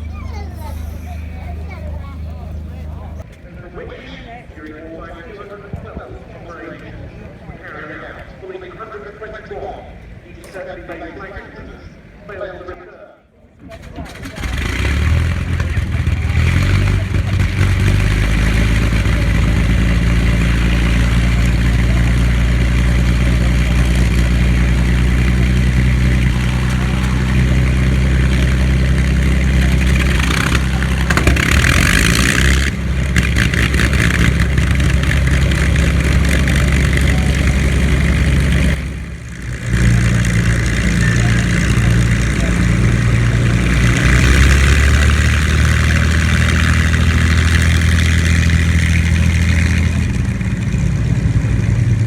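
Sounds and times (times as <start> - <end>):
large engine running: 0.0 - 3.3, 13.6 - 52.0.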